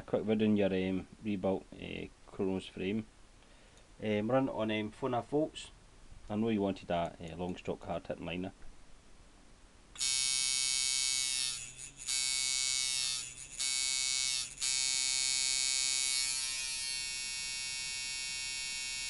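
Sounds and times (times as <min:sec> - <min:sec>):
tattoo machine buzzing: 0:10.0 - 0:19.0.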